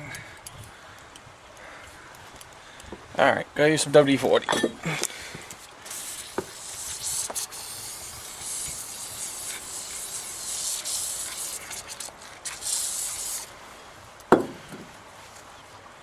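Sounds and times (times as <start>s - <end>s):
aerosol can spraying: 5.5s - 13.5s.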